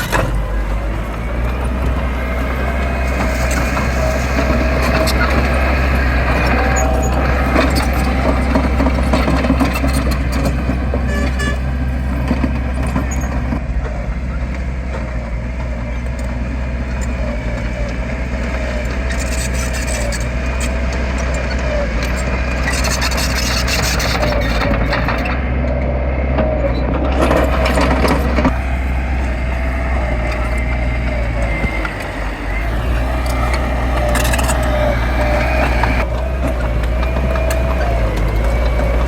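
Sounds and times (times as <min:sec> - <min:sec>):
harsh rattling noise: 0:00.0 - 0:13.6
heavy diesel engine humming: 0:00.0 - 0:39.0.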